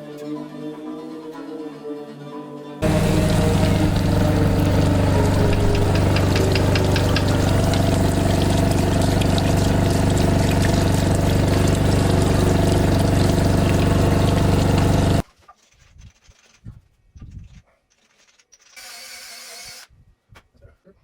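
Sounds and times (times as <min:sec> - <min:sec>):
hiss of spraying water: 0:02.8 - 0:15.2
loud machine drone: 0:02.8 - 0:15.2.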